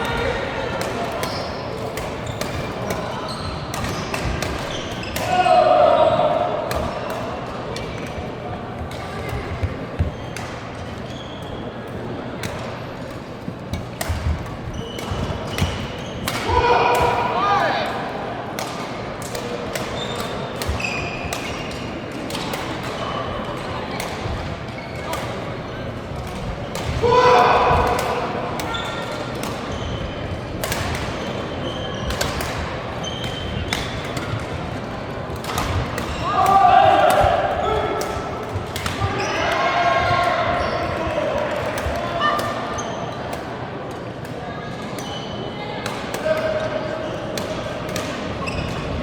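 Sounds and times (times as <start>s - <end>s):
rackets hitting shuttlecock: 0.0s - 8.2s, 11.5s - 25.6s, 26.2s - 29.9s, 30.5s - 45.2s, 45.8s - 49.0s
sports hall hum: 0.0s - 49.0s
shoes squeaking on court floor: 1.2s - 5.2s, 6.9s - 12.1s, 12.8s - 16.3s, 19.4s - 25.7s, 28.6s - 30.4s, 31.1s - 39.5s, 40.4s - 41.2s, 41.8s - 43.4s, 44.8s - 45.5s, 46.2s - 49.0s
shoe squeaks on court: 1.3s - 4.1s, 11.0s - 11.7s, 33.0s - 33.6s.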